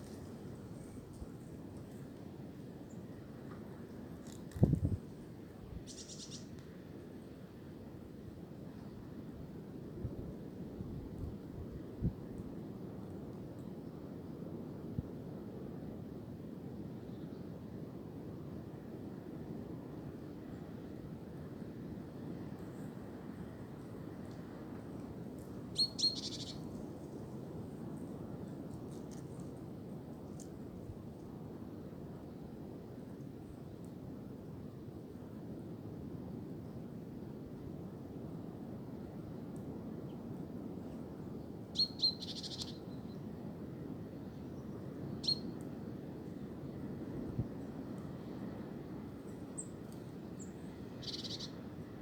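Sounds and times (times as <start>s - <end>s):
wind in tree branches: 0.0s - 52.0s
bird chirps: 5.9s - 6.5s, 25.8s - 26.6s, 41.8s - 42.8s, 45.2s - 45.5s, 50.4s - 51.5s.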